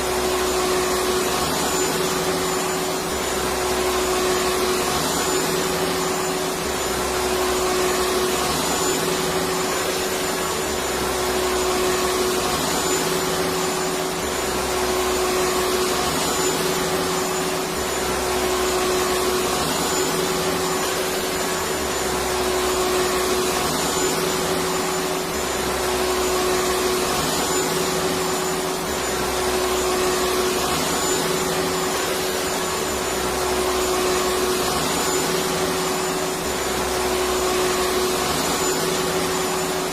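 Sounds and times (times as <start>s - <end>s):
vacuum cleaner motor whirring: 0.0s - 39.9s.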